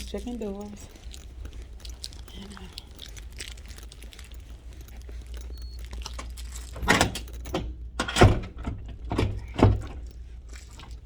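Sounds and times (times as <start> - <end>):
doors rattling: 6.4 - 10.1.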